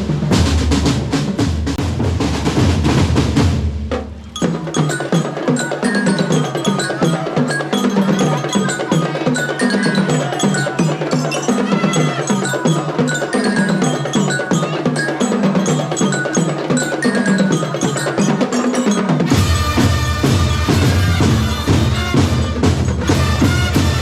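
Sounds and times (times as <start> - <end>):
drum corps percussion: 0.0 - 24.0
bell-like mallet percussion: 4.0 - 24.0.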